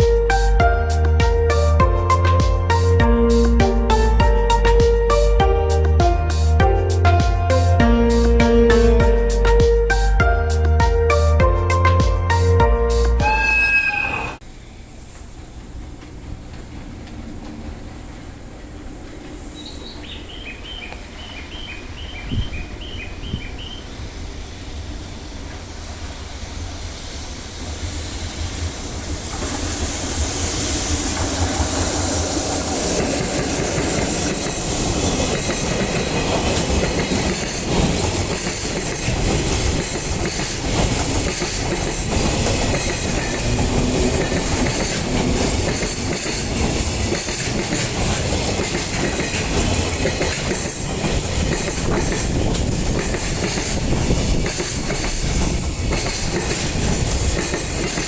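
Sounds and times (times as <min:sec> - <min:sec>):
high wheel squeal: 0:13.2 - 0:14.4, 0:42.6 - 0:47.5
freight train wagons rolling: 0:13.2 - 0:58.0.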